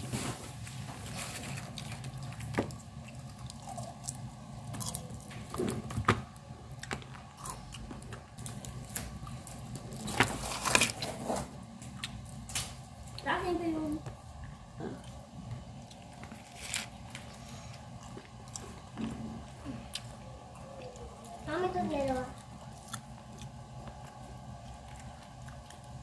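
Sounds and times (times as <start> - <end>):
person chewing food: 1.0 - 13.2, 14.1 - 21.4, 22.3 - 26.0.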